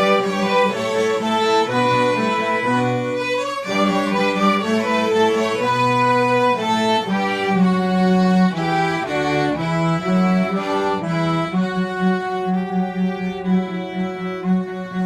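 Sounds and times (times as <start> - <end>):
cellos and basses: 0.0 - 15.0
violins playing melody: 0.0 - 15.0.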